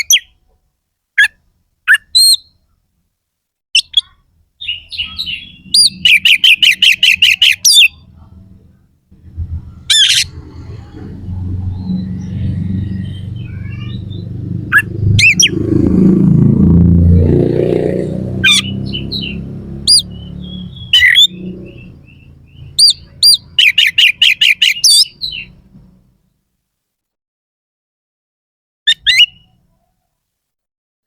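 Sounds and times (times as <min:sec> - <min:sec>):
low rumbling noise: 0:04.7 - 0:23.6
bird singing sharp notes: 0:17.2 - 0:25.6.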